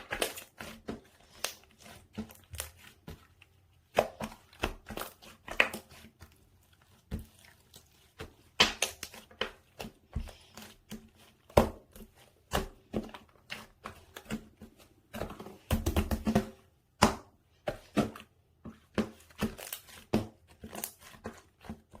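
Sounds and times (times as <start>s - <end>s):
slime popping and squelching: 0.0s - 16.3s.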